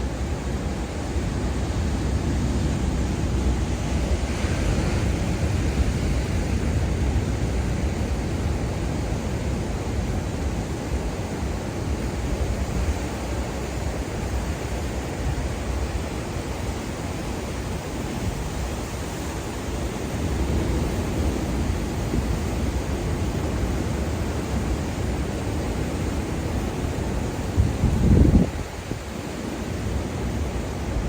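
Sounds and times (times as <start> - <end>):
ocean waves washing on beach: 0.0 - 31.0
wind rumble on microphone: 19.9 - 31.0.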